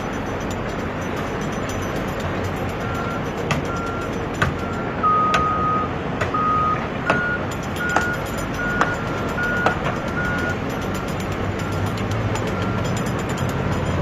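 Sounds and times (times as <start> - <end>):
motor and gear noise: 0.0 - 14.0
electronic reversing beeps: 2.8 - 10.6
sharp clicks: 7.1 - 14.0.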